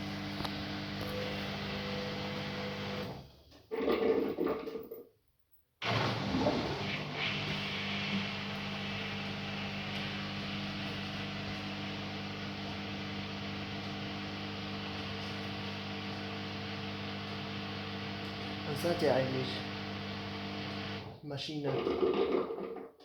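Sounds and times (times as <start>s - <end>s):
washing machine running: 0.0s - 3.4s, 5.8s - 21.2s.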